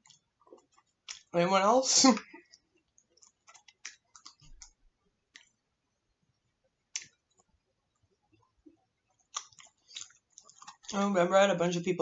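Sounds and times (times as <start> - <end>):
wet mouth clicks and smacks: 0.0 - 1.3, 3.2 - 4.7, 6.9 - 7.5, 9.2 - 10.9.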